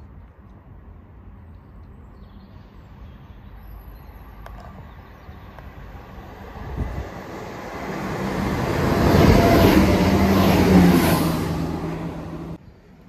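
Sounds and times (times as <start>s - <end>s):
diesel train engine: 3.4s - 13.0s
train wheels rumbling on rails: 5.6s - 12.6s.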